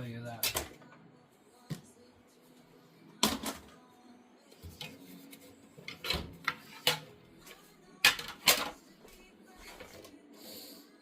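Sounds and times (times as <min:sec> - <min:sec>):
dishes clattering: 0:05.9 - 0:07.2, 0:08.0 - 0:08.8.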